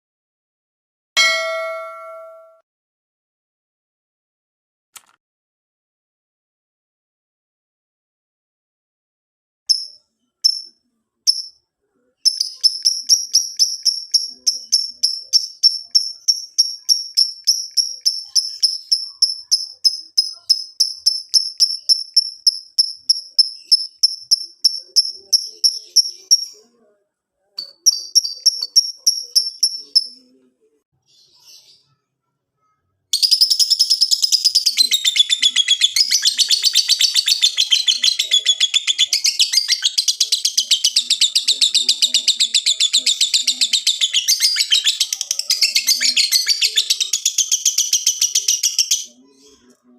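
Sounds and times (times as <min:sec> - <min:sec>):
lovebird chirping: 0:12.2 - 0:26.7, 0:27.6 - 0:30.4, 0:32.7 - 0:49.7
lovebird fast chattering song: 0:12.3 - 0:26.6, 0:27.6 - 0:30.2, 0:33.2 - 0:49.2.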